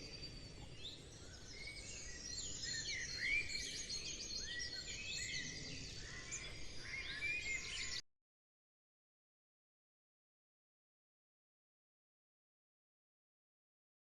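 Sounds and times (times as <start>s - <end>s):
songbirds chirping and singing: 0.0s - 8.0s.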